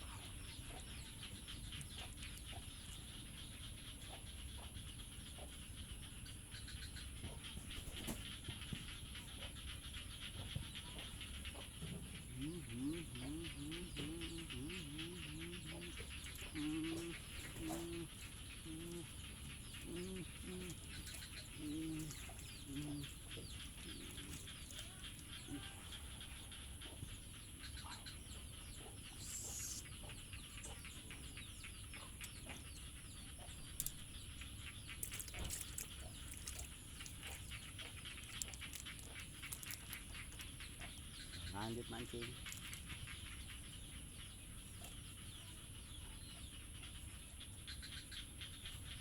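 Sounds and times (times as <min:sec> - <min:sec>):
animal giving short low calls: 0:12.2 - 0:19.2, 0:19.8 - 0:26.0.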